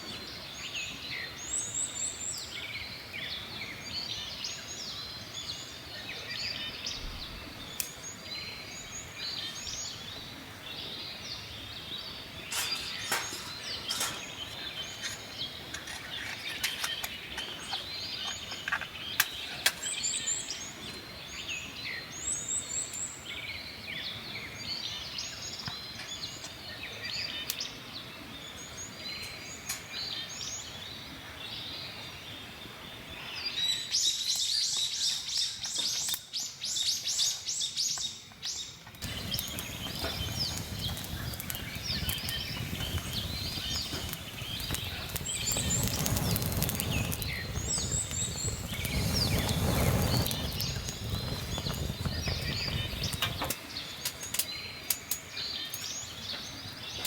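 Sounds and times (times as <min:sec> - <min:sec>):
sharp crackling clicks: 0:12.5 - 0:15.8, 0:39.0 - 0:55.9
low rushing noise: 0:39.0 - 0:53.5
birds chirping and singing: 0:39.0 - 0:57.0.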